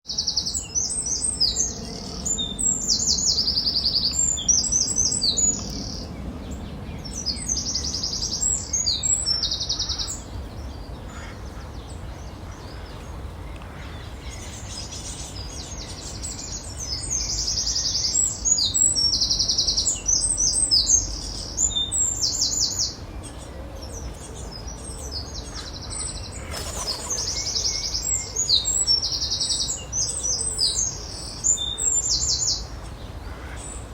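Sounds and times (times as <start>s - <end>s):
small birds chirping: 24.6s - 33.0s.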